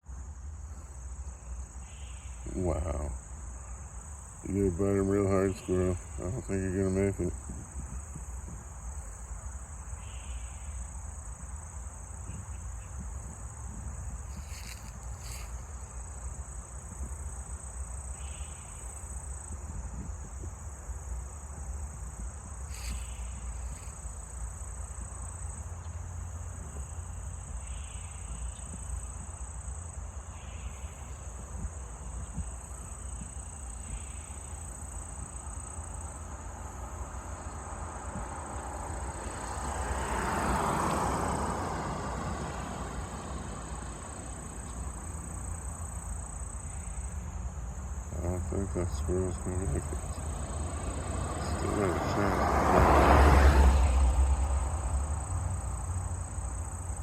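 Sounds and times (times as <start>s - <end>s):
insects trilling: 0.0s - 57.0s
low outdoor rumble: 0.2s - 18.6s, 41.1s - 52.6s.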